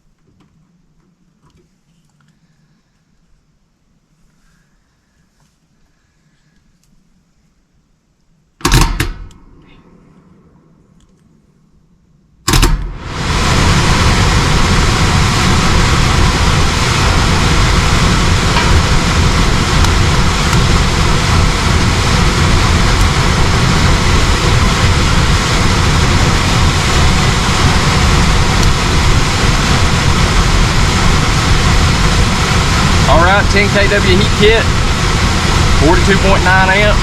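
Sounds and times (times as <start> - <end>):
air handler blower running: 8.6 - 10.0, 12.5 - 37.0.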